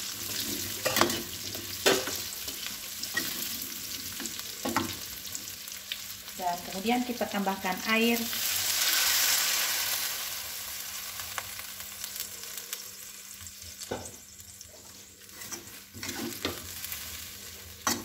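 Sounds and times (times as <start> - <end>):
water sizzling in hot oil: 0.0 - 18.0
metal spatula scraping a wok: 0.1 - 4.2, 14.7 - 18.0.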